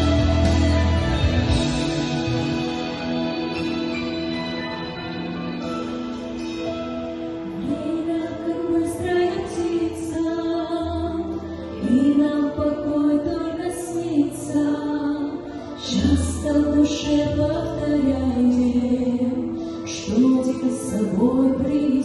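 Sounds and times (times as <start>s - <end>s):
instrumental accompaniment: 0.0s - 10.6s
woman singing: 7.6s - 22.0s.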